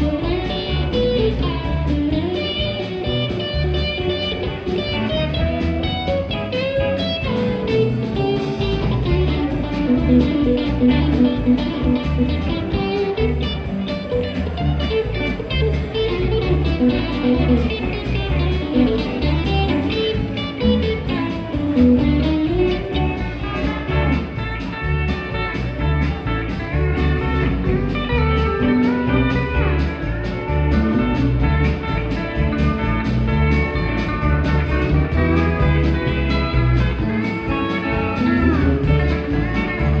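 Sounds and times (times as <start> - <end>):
bass line: 0.0 - 40.0
guitar melody: 0.0 - 40.0.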